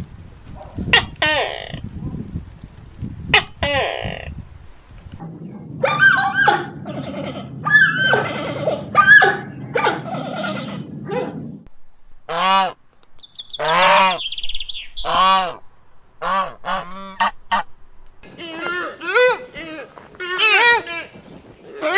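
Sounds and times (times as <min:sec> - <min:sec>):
geese honking: 0:00.9 - 0:01.8, 0:03.3 - 0:04.3, 0:05.2 - 0:11.6, 0:12.3 - 0:12.8, 0:13.6 - 0:21.9
low steady rumble: 0:03.8 - 0:13.2.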